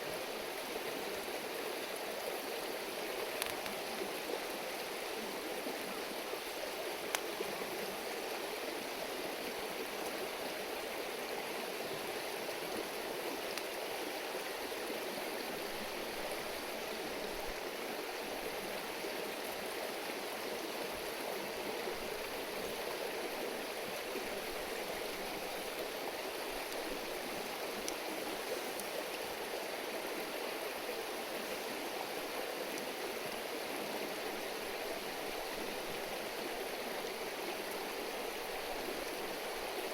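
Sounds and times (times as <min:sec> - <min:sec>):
river babbling over stones: 0:00.0 - 0:39.9
faint clicks: 0:03.4 - 0:03.8, 0:07.1 - 0:07.3, 0:27.8 - 0:28.0, 0:28.7 - 0:28.9.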